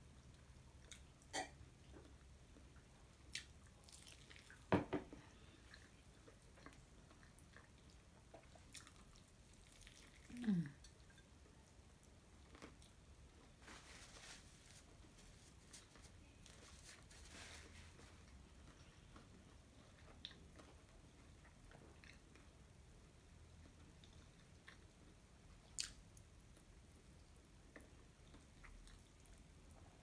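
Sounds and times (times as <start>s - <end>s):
wet chewing and mouth clicks: 3.2s - 4.7s, 5.6s - 11.2s, 25.6s - 26.0s.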